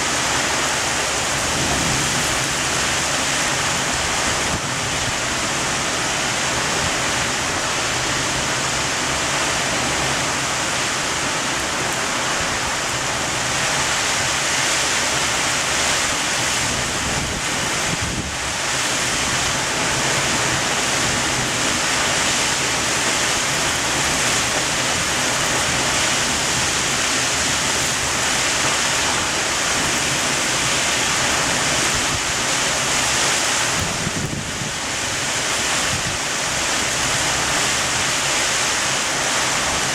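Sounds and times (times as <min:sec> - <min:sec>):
heavy rain downpour: 0:00.0 - 0:39.9
wind buffeting microphone: 0:16.0 - 0:22.6, 0:33.6 - 0:36.3.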